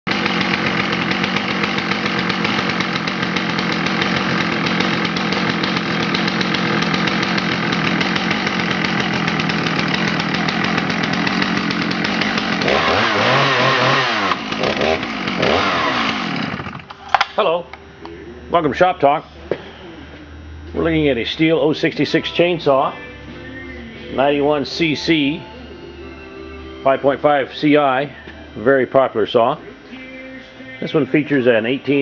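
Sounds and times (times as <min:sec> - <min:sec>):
chainsaw running at high speed: 0:00.1 - 0:17.0, 0:24.2 - 0:29.2.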